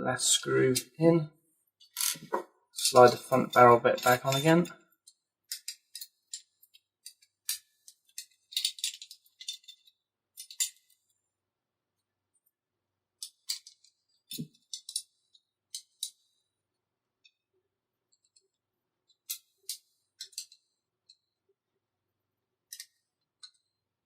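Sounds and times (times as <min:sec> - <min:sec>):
pistol parts clicking: 0:22.7 - 0:23.7.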